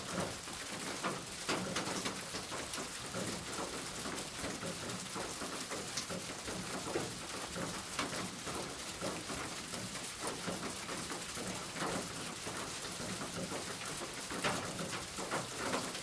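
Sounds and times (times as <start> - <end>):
rain pattering on a roof: 0.0 - 16.0.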